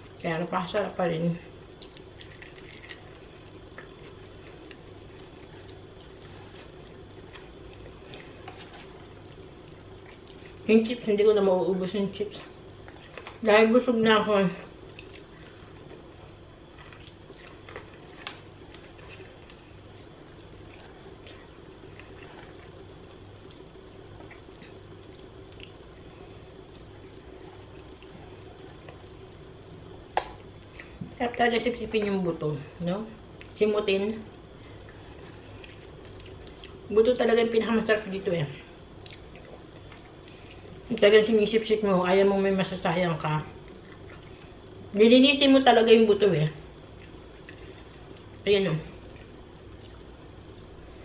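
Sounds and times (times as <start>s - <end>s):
steady low hum: 0.0s - 51.0s
crunchy chewing: 1.7s - 10.7s, 14.7s - 31.0s, 34.4s - 36.9s, 49.0s - 50.5s.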